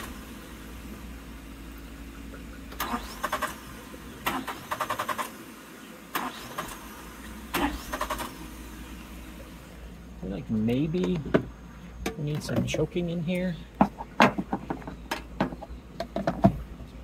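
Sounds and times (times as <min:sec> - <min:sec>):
engine cranking on starter: 0:00.0 - 0:00.6, 0:02.6 - 0:09.0.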